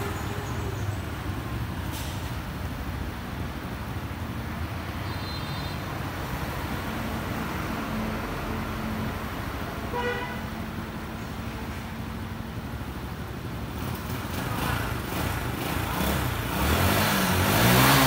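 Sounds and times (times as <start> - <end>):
running vehicle noise: 0.0 - 18.0
engine revving up: 14.5 - 18.0.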